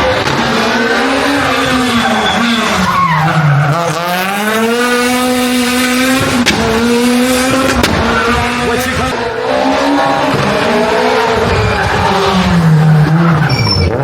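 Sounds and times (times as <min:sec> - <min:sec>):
rally car engine accelerating: 0:00.0 - 0:14.0
sharp cracks: 0:06.0 - 0:09.2.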